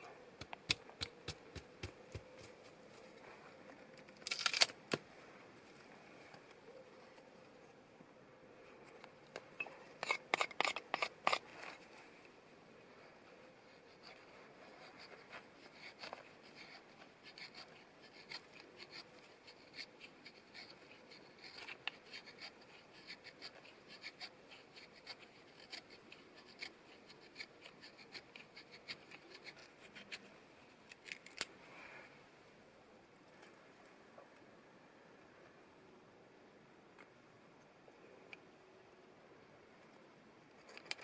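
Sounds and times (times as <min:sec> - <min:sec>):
faint hiss: 0:29.6 - 0:40.6
light clicks and crackles: 0:39.8 - 0:41.0.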